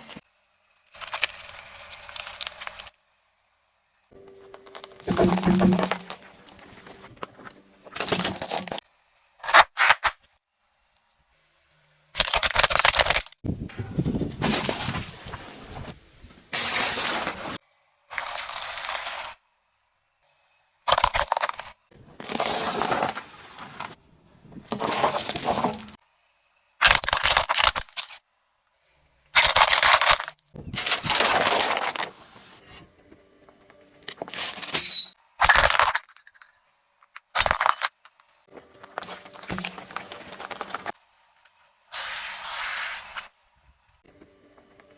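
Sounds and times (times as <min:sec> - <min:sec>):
objects crunching under car tyres: 0:04.5 - 0:08.8, 0:12.3 - 0:16.0, 0:20.9 - 0:26.0, 0:29.4 - 0:32.6, 0:37.4 - 0:41.0.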